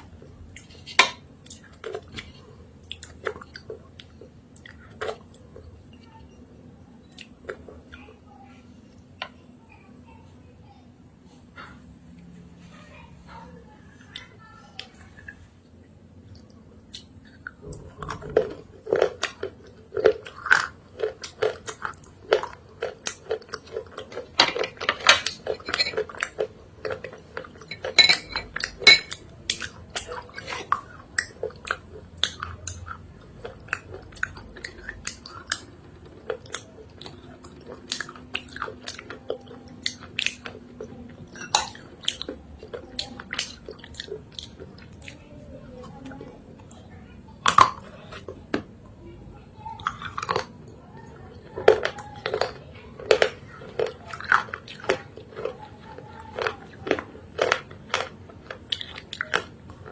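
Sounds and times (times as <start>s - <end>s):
wet crunchy chewing: 16.3s - 45.2s, 49.7s - 59.9s.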